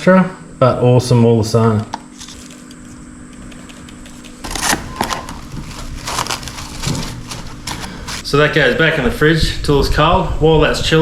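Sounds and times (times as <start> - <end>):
low steady hum: 0.0 - 10.9
crackling: 2.0 - 8.4.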